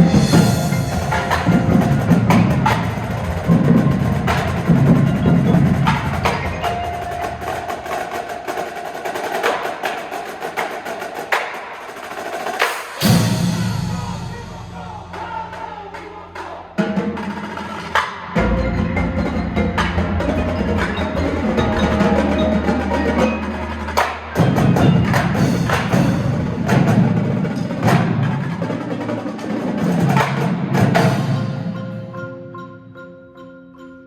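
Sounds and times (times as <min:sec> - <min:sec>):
mallet keyboards ringing: 0:00.0 - 0:10.3, 0:18.4 - 0:26.4, 0:31.0 - 0:34.0
drum hits: 0:00.0 - 0:28.7.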